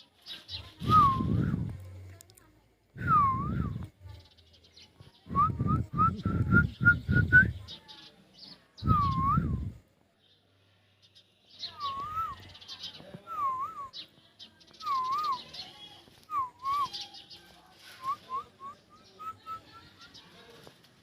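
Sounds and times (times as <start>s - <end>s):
bird whistling a phrase: 8.8s - 9.7s, 11.6s - 14.1s, 14.8s - 17.4s
high bird chirps: 11.0s - 18.2s.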